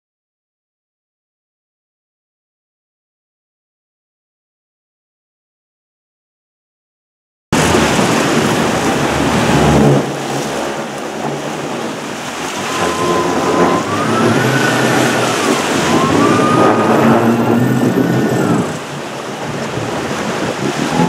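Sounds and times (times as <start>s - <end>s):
boat engine: 7.6s - 21.0s
water rushing: 7.6s - 21.0s
wind: 7.6s - 21.0s
whine gliding in pitch: 7.8s - 21.0s.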